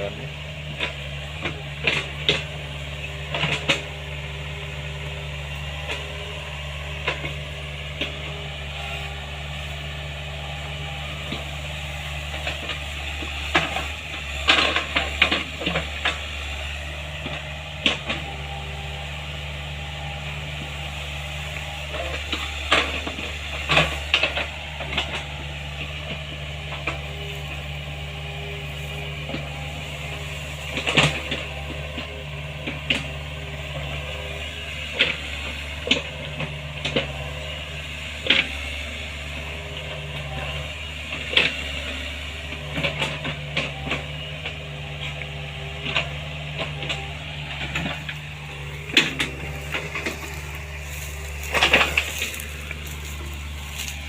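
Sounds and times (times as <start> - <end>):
excavator diesel engine running: 0.0 - 54.0
wood and brush cracking: 46.0 - 54.0.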